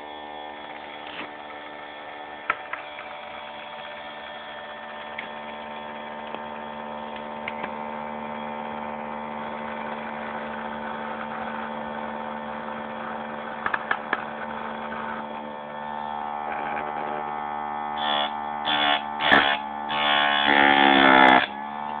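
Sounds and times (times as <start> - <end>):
sharpening machine electric hum: 0.0 - 22.0
grinding wheel biting into chain: 18.0 - 22.0.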